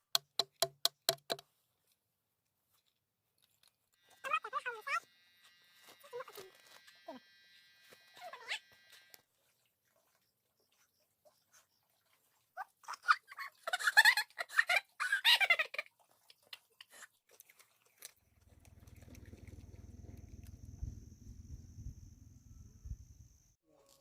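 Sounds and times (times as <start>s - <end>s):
small clicks: 18.4s - 20.8s
low steady rumble: 18.4s - 23.6s.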